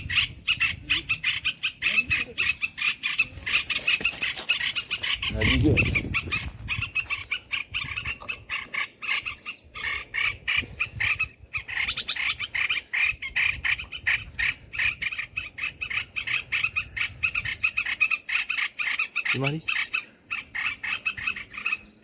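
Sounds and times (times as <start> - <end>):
bulbul calls chattering: 0.0 - 22.0.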